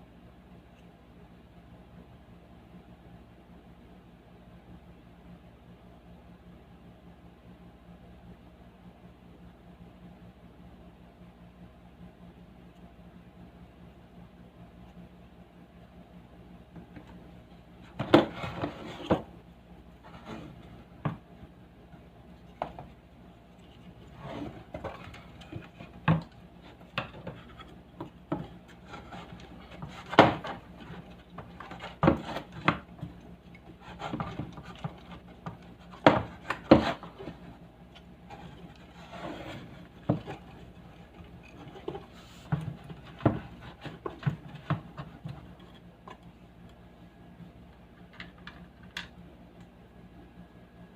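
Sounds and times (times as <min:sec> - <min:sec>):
faint low hum: 0:00.0 - 0:50.9
hard objects knocking and rubbing: 0:17.8 - 0:19.3, 0:22.4 - 0:37.6, 0:38.3 - 0:46.2.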